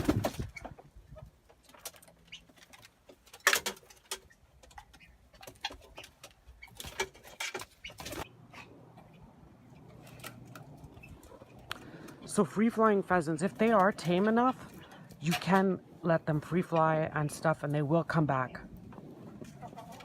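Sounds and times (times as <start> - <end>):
bird calls and clicks: 1.5 - 12.3.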